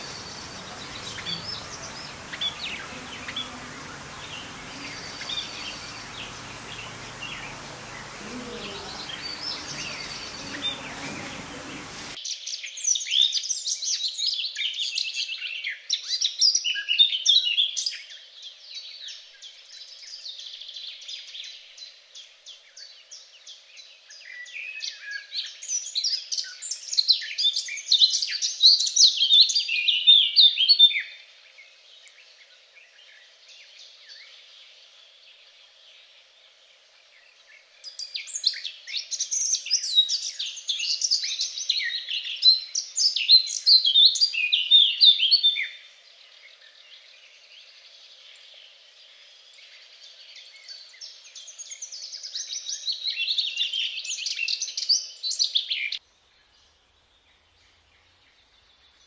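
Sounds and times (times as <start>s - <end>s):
budgerigars chirping and warbling: 0.0s - 12.2s
background hiss: 0.0s - 12.6s, 30.6s - 59.0s
dense twittering of small birds: 0.0s - 59.0s.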